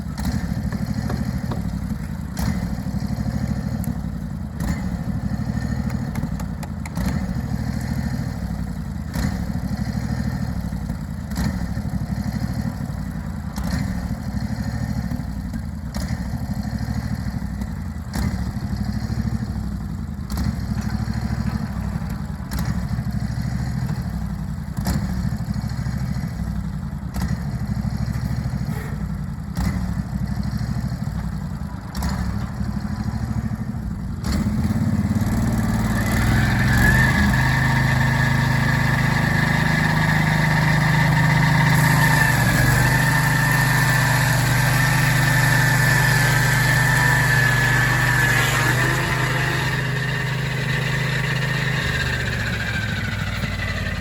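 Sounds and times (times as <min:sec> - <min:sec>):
sawmill engine running: 0:00.0 - 0:11.0, 0:34.4 - 0:54.0
saw blade high whine: 0:35.8 - 0:54.0.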